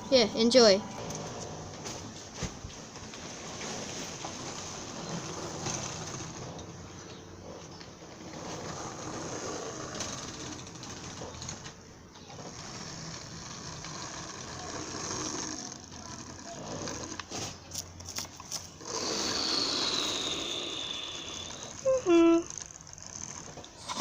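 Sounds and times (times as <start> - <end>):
train engine running: 12.5 - 24.0.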